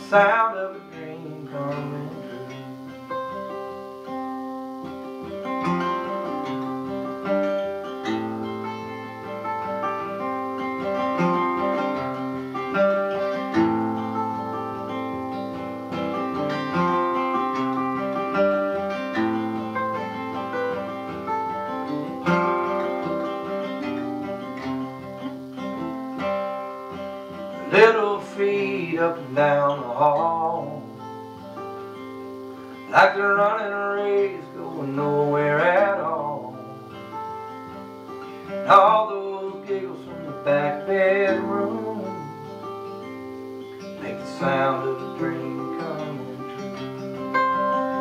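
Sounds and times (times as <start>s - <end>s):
acoustic guitar playing: 0.0s - 48.0s.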